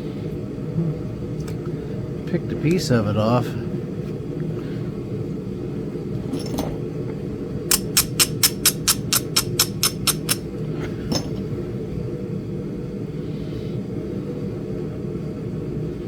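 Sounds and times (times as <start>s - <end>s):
steady low hum: 0.0s - 16.0s
stone knapping clicks: 7.7s - 10.4s.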